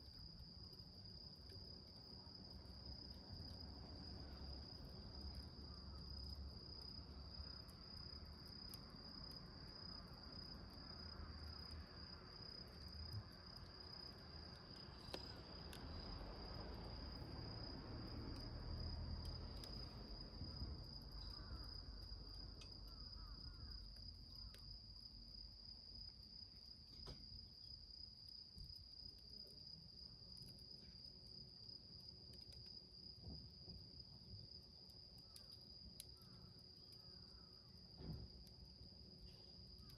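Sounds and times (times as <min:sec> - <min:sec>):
crickets trilling: 0:00.0 - 0:39.9
wood fire crackling: 0:14.3 - 0:17.2.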